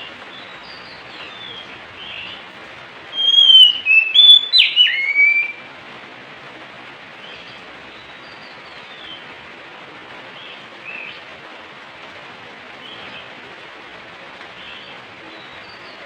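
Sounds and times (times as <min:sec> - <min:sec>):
steady hiss: 0:00.0 - 0:16.0
bird singing whistled notes: 0:03.1 - 0:05.6.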